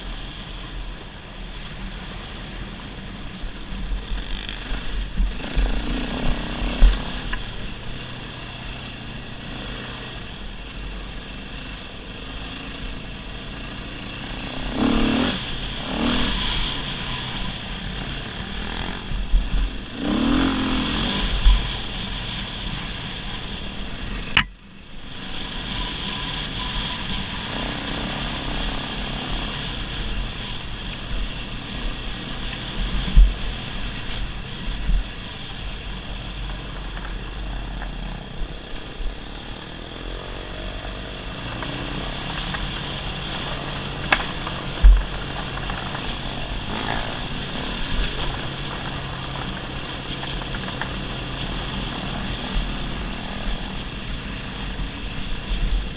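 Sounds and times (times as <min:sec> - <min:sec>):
dirt bike engine revving: 0:04.1 - 0:07.5, 0:11.7 - 0:23.2, 0:38.0 - 0:55.0.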